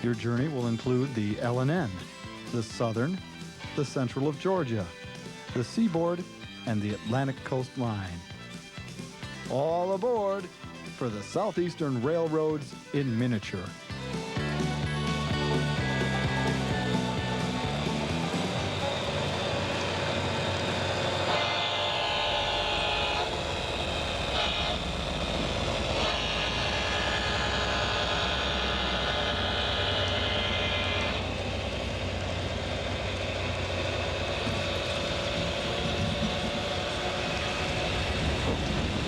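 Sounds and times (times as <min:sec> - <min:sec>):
train rumbling: 0:14.2 - 0:21.4, 0:22.0 - 0:39.0
train horn blasts: 0:20.8 - 0:23.6, 0:25.9 - 0:30.5.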